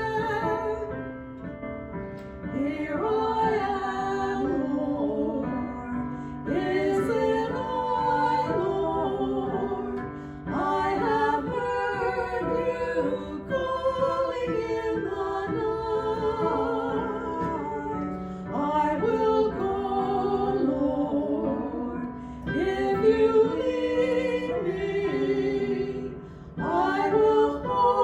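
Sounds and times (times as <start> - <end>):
voices singing a hymn: 0.0 - 1.0, 2.5 - 28.0.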